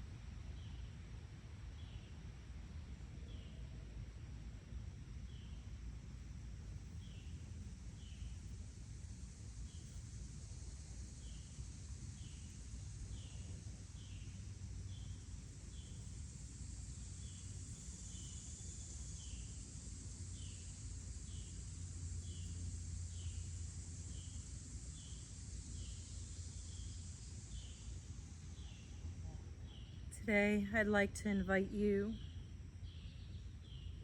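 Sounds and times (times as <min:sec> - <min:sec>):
high insect drone: 0:05.2 - 0:30.7.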